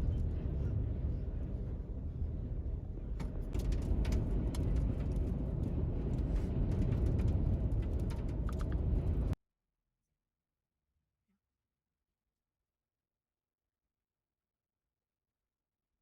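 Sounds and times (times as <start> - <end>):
vehicle road and wind noise: 0.0 - 9.4.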